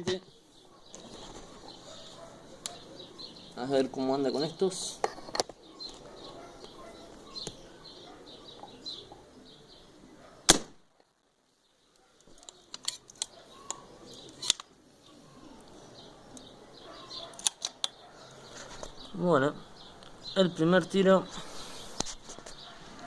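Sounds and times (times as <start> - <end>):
birds chirping faintly: 0.0 - 23.0
air rifle shot: 10.5 - 10.8.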